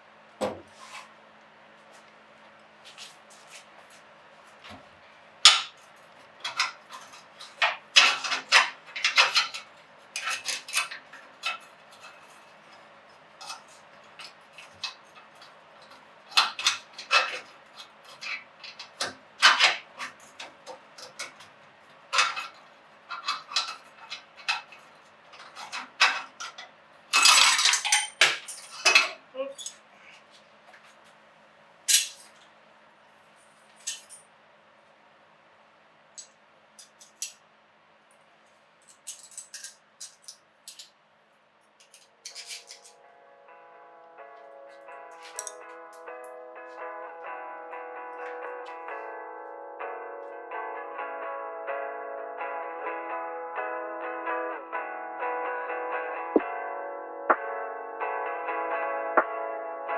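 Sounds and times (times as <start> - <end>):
hand tools clinking on metal: 5.5 - 29.9, 31.9 - 32.4, 33.7 - 34.3, 36.2 - 37.4, 38.8 - 41.0, 41.8 - 43.0, 45.2 - 45.7.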